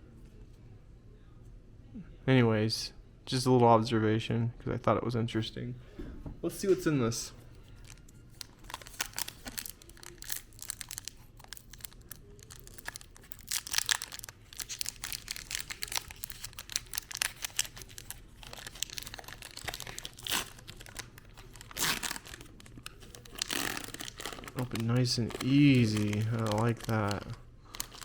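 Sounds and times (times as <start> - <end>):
foil wrapper crinkling and tearing: 7.7 - 28.0.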